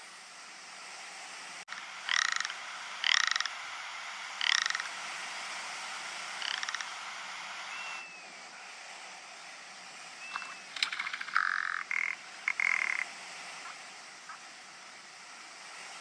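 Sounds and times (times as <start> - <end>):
ptarmigan rattling croaks: 1.7 - 5.1, 6.2 - 7.3, 10.3 - 14.4.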